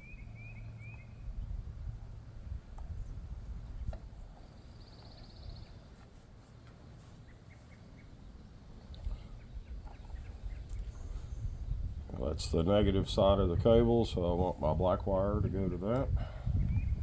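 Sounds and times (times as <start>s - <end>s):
wind buffeting microphone: 0.9s - 5.7s, 8.7s - 17.0s.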